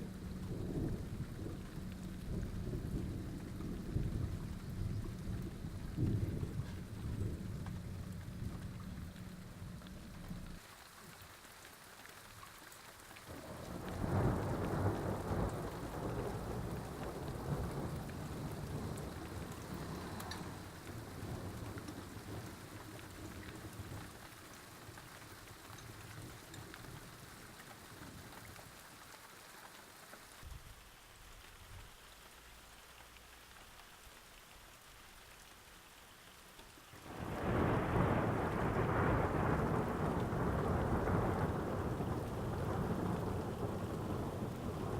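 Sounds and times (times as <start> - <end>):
thunder rumbling: 0.0 - 10.6, 13.3 - 24.2, 37.0 - 44.9
steady rain: 0.0 - 44.9.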